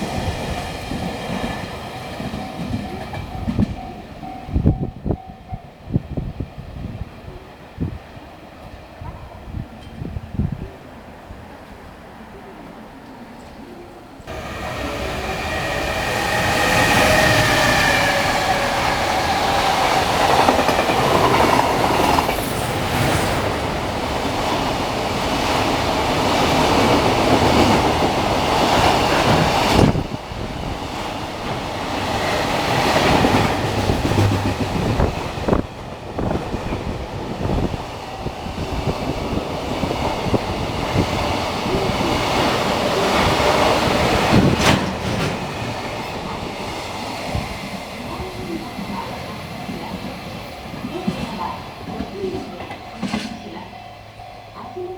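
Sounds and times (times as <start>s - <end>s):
train wheels rumbling: 0.0s - 12.2s, 14.2s - 54.9s
steady locomotive tones: 0.0s - 54.9s
wagons clattering over rail joints: 43.2s - 46.5s.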